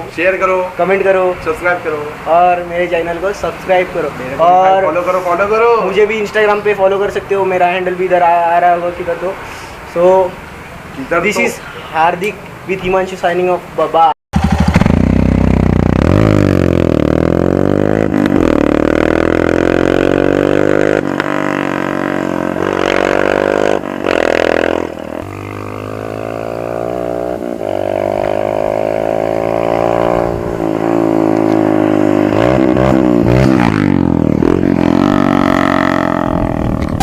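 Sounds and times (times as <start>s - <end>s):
motorcycle engine revving: 14.3s - 37.0s.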